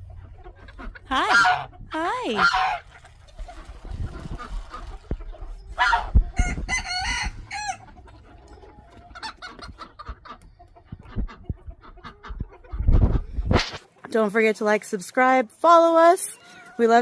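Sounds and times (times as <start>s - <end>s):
chicken clucking: 0.0s - 14.2s
rooster crowing: 5.8s - 7.8s.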